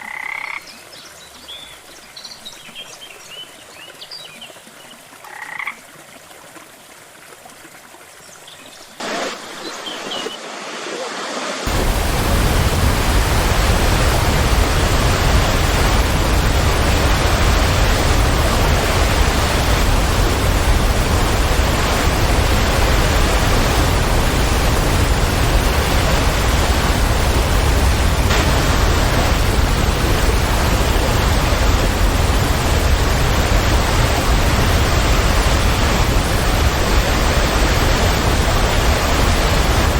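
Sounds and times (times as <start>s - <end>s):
faint rush of water: 0.0s - 39.9s
waterfall rushing: 8.9s - 39.9s.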